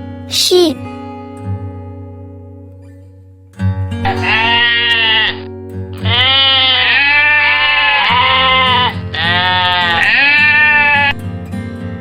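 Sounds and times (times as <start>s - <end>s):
sheep bleating: 4.0s - 11.2s.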